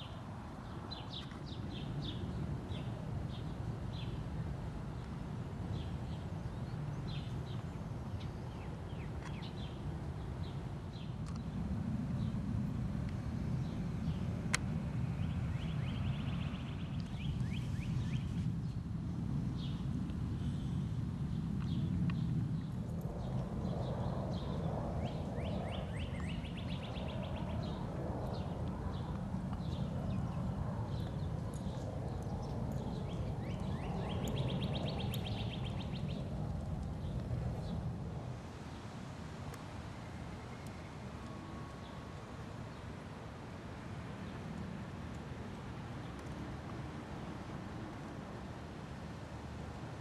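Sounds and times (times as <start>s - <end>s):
steady low rumble: 0.0s - 39.2s
songbirds chirping: 0.0s - 50.0s
birds chirping: 15.1s - 18.8s, 21.3s - 37.8s.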